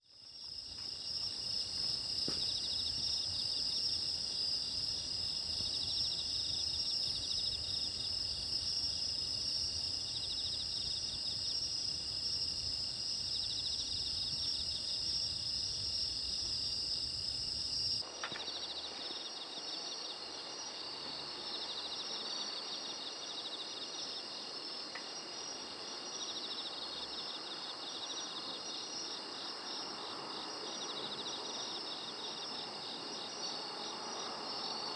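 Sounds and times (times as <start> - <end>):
crickets trilling and chirping: 0.0 - 34.9.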